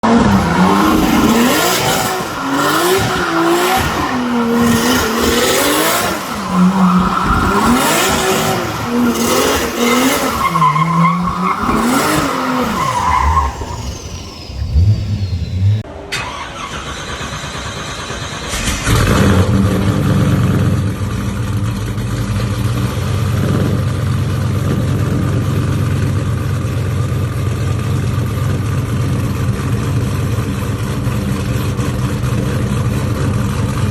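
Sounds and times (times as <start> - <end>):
car engine revving: 0.0 - 26.2.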